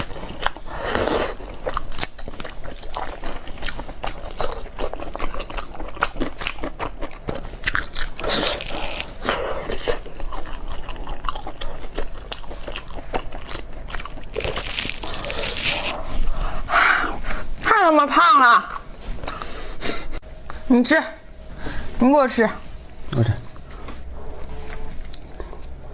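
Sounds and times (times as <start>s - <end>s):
person chewing meat: 0.0s - 17.6s, 23.1s - 25.9s.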